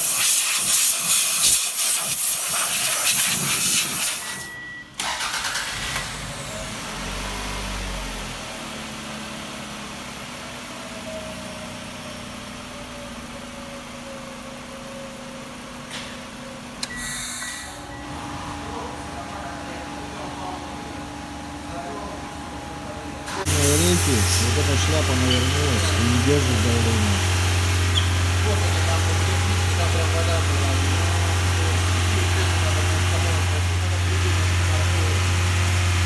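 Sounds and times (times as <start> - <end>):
air hissing out: 0.0 - 4.4, 16.9 - 17.8, 23.4 - 28.2
car engine starting and idling: 4.9 - 36.0.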